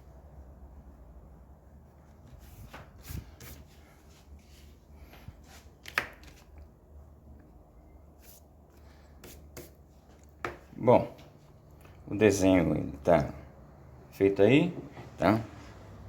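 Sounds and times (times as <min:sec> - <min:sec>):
pencil tapping and paper rustling: 0:05.7 - 0:06.7, 0:09.2 - 0:10.7.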